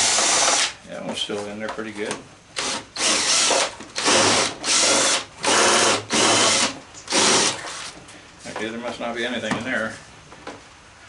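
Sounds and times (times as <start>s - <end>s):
power drill driving a screw: 0.0s - 0.7s, 2.6s - 7.9s.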